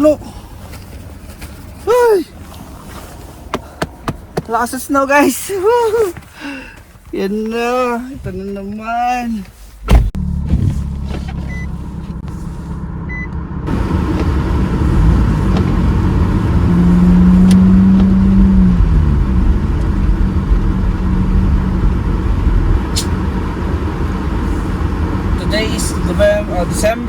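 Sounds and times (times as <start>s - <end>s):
tyre and road noise: 0.0s - 27.0s
car engine accelerating: 9.9s - 27.0s.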